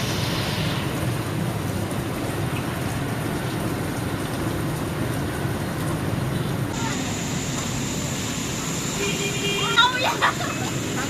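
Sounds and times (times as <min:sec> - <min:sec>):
heavy rain on flooded street: 0:00.0 - 0:11.0
vehicle traffic rumbling: 0:00.0 - 0:11.0
higher hiss: 0:06.7 - 0:11.0.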